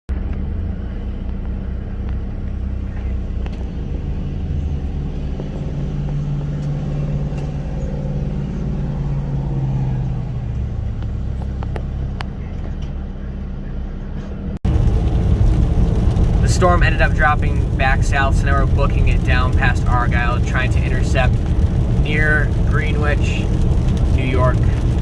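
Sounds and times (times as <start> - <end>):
car engine and road rumble: 0.1 - 25.0.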